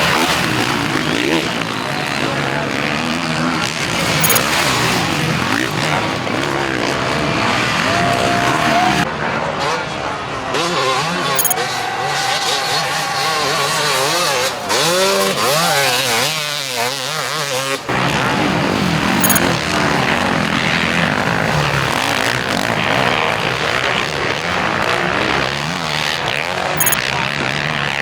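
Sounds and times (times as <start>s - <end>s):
motocross bikes revving: 0.0s - 28.0s.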